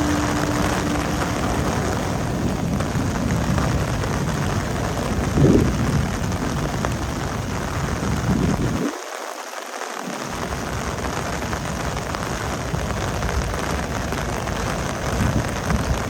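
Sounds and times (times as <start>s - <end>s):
train wheels rumbling on rails: 0.0s - 8.6s.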